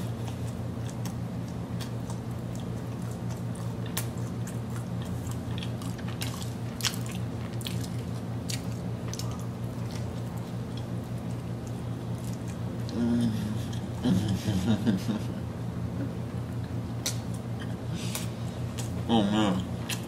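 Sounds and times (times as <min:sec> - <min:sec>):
person chewing with mouth open: 0:00.0 - 0:13.0, 0:19.6 - 0:20.0
steady low hum: 0:00.0 - 0:20.0.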